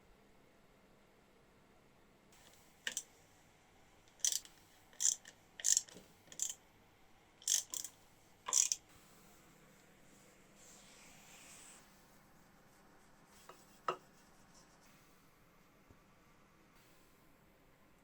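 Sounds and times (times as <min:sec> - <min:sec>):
hand tool hissy strokes: 0:04.2 - 0:06.5, 0:07.4 - 0:07.9, 0:08.5 - 0:08.8.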